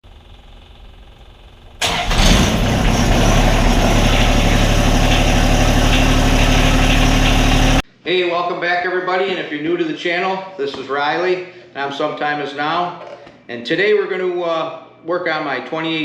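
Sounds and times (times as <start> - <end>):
tractor diesel engine running: 0.4 - 7.8.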